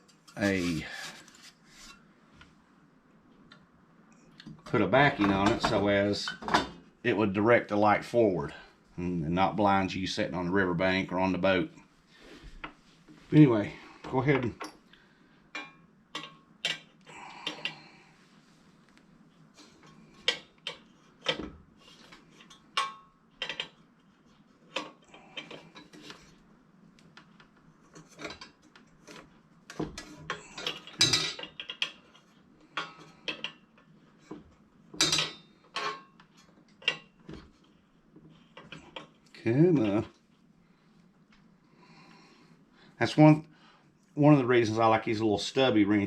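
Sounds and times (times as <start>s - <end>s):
wrenches clinking on metal: 30.0s - 33.6s, 35.0s - 37.1s.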